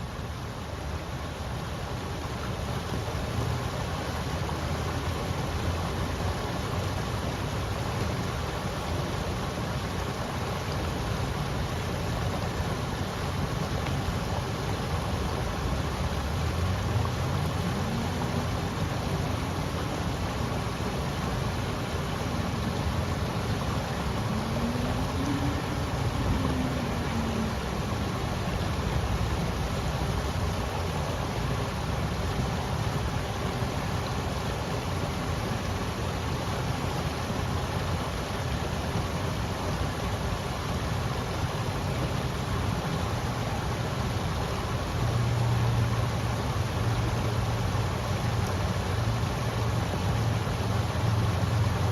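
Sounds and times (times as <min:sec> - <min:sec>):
river water rushing: 0:00.0 - 0:51.9
faint low hum: 0:16.0 - 0:29.9.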